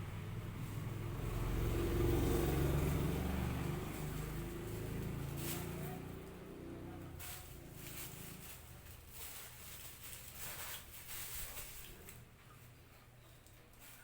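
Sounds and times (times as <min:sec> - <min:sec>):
vehicle engine rumble: 0:00.0 - 0:09.9.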